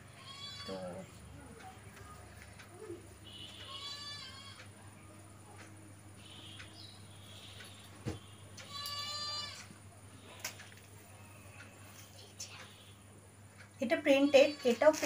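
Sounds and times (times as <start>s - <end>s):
goat bleating: 0.1s - 1.0s, 3.7s - 4.7s, 8.6s - 9.7s.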